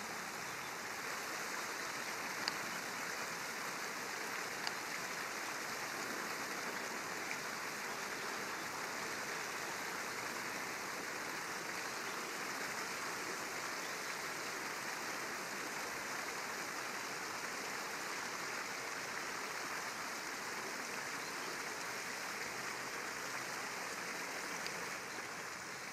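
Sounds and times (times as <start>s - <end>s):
river flowing: 0.0s - 25.9s
faint tick: 2.3s - 2.8s, 4.6s - 4.9s, 24.6s - 25.0s.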